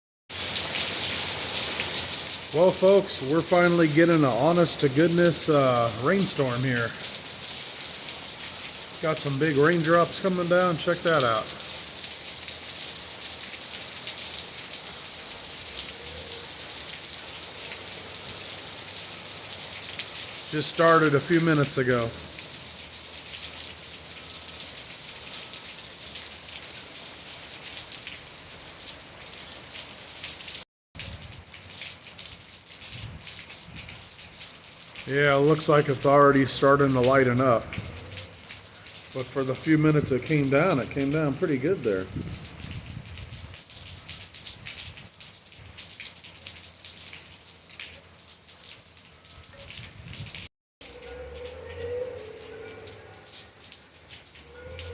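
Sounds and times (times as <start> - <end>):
heavy rain hissing: 0.3 - 24.6, 35.0 - 42.4
raindrops pattering: 0.3 - 54.9.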